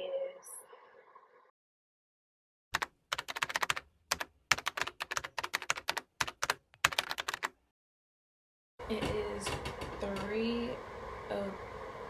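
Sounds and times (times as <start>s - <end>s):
keyboard typing: 2.8s - 7.6s.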